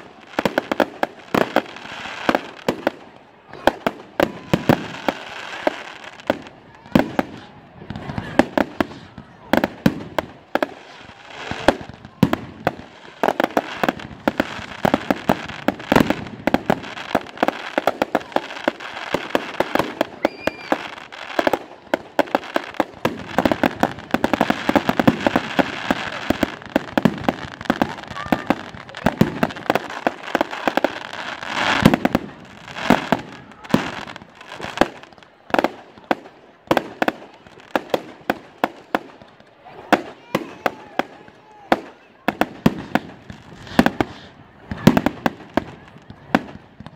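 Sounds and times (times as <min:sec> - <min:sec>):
fireworks bangs and pops: 0:00.0 - 0:46.9
crackling hiss: 0:40.8 - 0:46.9.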